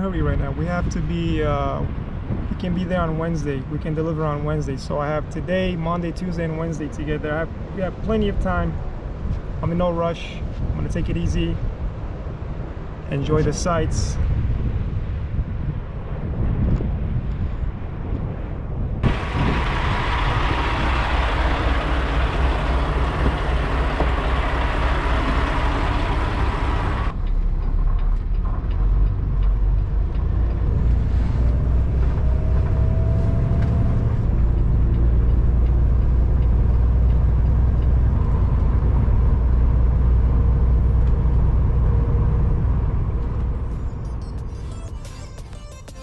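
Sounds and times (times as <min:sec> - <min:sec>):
truck engine rumble: 0:18.4 - 0:46.0.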